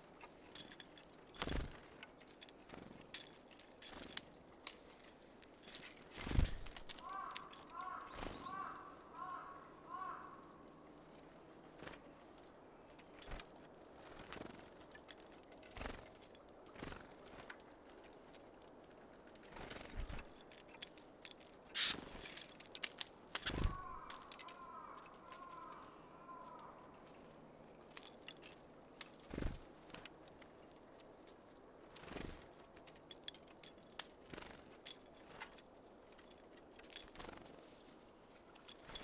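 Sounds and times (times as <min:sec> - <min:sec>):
birds tapping and pecking: 0:00.0 - 0:39.0
wing flutters: 0:00.2 - 0:10.6, 0:11.3 - 0:27.3, 0:27.9 - 0:30.9, 0:31.5 - 0:38.0, 0:38.6 - 0:39.0
bird call: 0:23.5 - 0:26.9.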